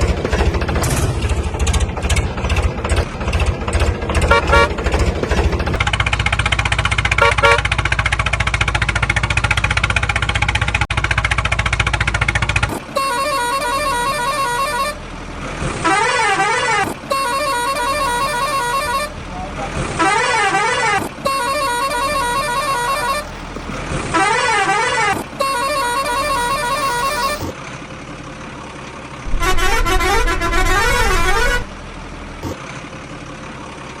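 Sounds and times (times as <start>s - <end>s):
heavy vehicle engine running: 0.0s - 34.0s
short horn toots: 7.2s - 7.7s, 15.8s - 19.2s, 20.0s - 27.4s, 29.3s - 31.8s.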